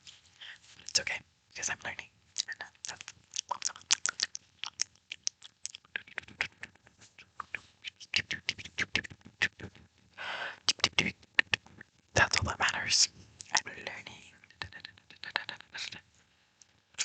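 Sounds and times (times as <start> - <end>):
tongue and lip clicks: 2.4 - 9.8, 10.6 - 12.8, 13.4 - 13.7, 14.4 - 16.0.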